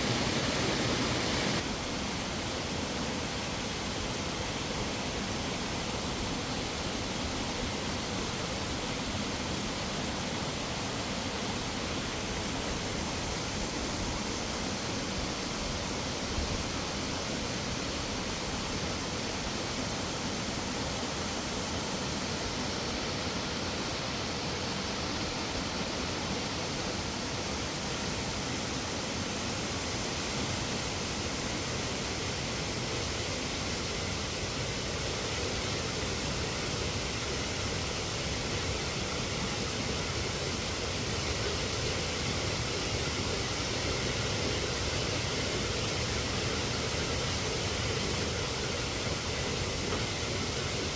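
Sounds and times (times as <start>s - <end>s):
steady rushing noise: 0.0s - 1.6s.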